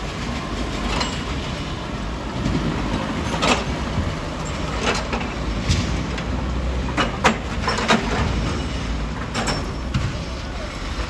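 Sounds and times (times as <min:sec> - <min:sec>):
quarry machinery rumbling: 0:00.0 - 0:11.0.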